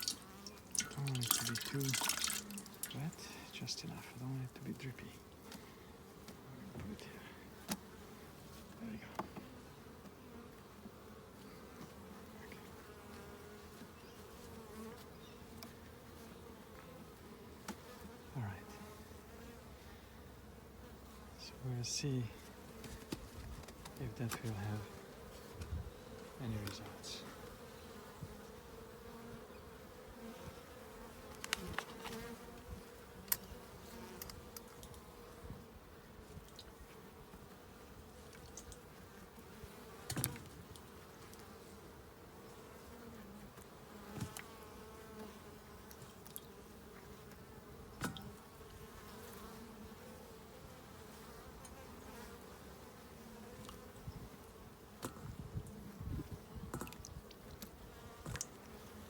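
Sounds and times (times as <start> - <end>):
bees buzzing: 0.0 - 36.1.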